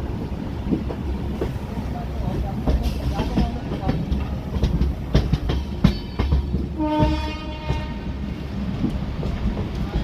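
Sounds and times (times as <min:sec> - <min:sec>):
train rumble: 0:00.0 - 0:10.0
train wheels clicking over rails: 0:00.0 - 0:10.0
train horn: 0:06.7 - 0:08.1.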